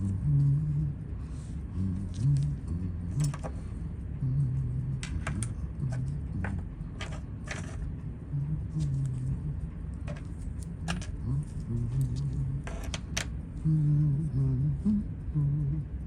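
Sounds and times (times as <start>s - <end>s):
man humming: 0.0s - 6.9s, 8.3s - 10.2s, 11.0s - 16.0s.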